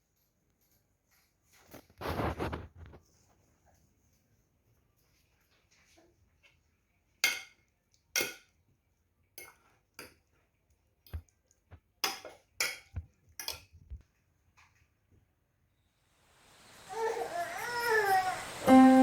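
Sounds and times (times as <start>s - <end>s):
dishes and utensils clinking: 7.2s - 8.6s, 12.0s - 13.8s.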